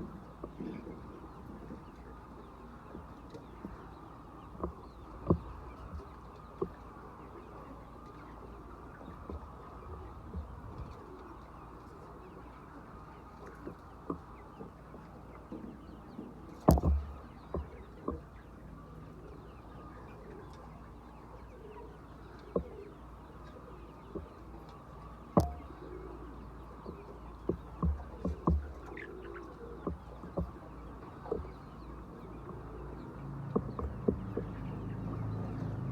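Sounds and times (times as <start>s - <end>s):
chickens clucking softly: 0.0s - 35.9s
sharp knocks: 16.7s - 18.2s, 25.4s - 25.8s, 26.9s - 29.0s.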